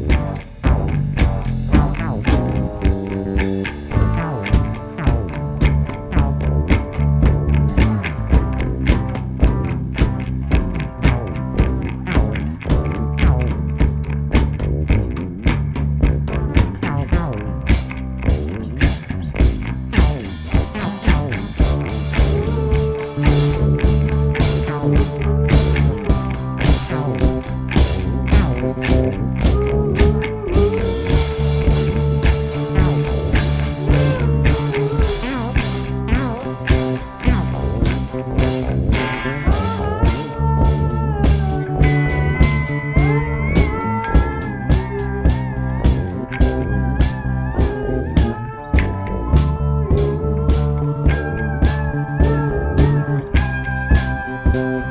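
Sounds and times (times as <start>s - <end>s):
bass line: 0.0s - 54.9s
bending guitar lead: 0.0s - 54.9s
drum kit beat: 0.0s - 54.9s
electric guitar: 0.0s - 54.9s.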